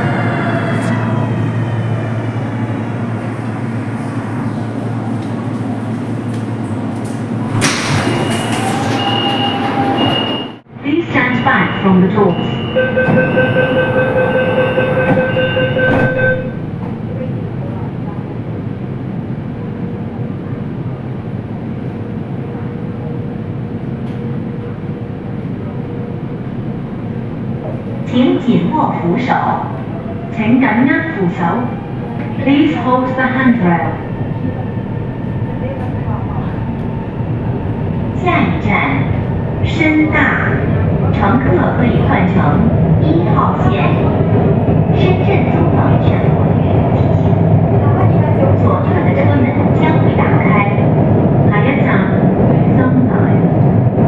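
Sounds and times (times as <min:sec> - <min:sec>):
train equipment hum: 0:00.0 - 0:54.0
door warning beeping: 0:07.9 - 0:10.6, 0:11.2 - 0:16.6.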